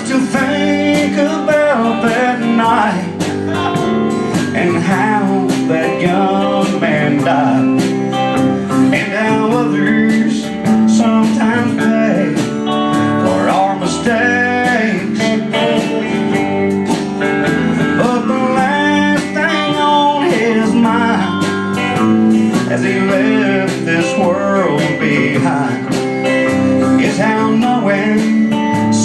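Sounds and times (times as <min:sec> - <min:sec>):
lead guitar with bending notes: 0:00.0 - 0:29.0
steady drum beat: 0:00.0 - 0:29.0
sustained guitar chords: 0:00.0 - 0:29.0.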